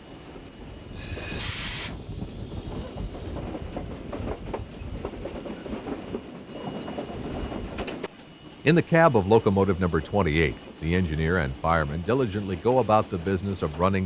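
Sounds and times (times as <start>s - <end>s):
train rumble: 0.0s - 14.0s
steam hiss: 0.9s - 3.3s
wheels clicking over rail joints: 2.1s - 8.6s.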